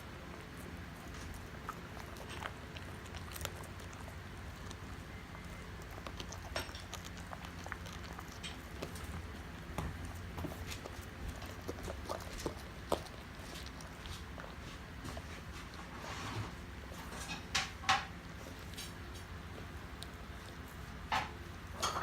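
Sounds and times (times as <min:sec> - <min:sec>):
dog chewing a hard chew: 0:00.0 - 0:16.1
steady low hum: 0:00.0 - 0:22.0.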